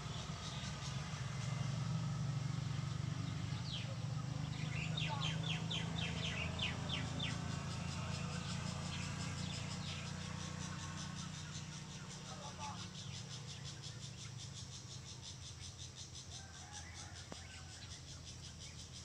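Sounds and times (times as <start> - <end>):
songbird singing: 0.0 - 19.0
bird calls: 2.8 - 19.0.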